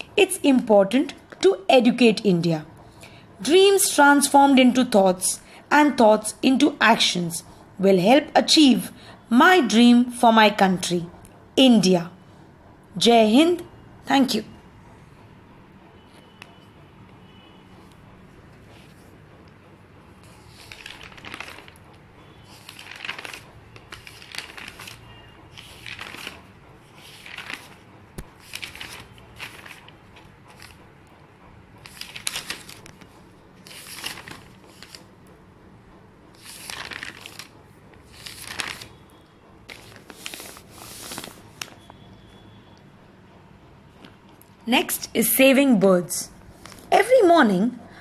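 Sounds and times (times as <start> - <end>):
paper rustling and crinkling: 20.2 - 30.8, 31.8 - 35.1, 36.4 - 39.0, 39.7 - 42.0.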